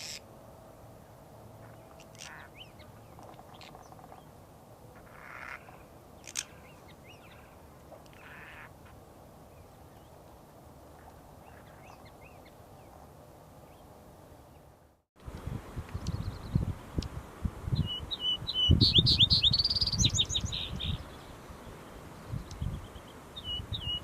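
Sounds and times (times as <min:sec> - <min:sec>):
outdoor background noise: 0:00.0 - 0:24.0
harsh raspy bird calls: 0:01.6 - 0:02.8, 0:05.0 - 0:09.0
bird chirps: 0:17.8 - 0:21.4.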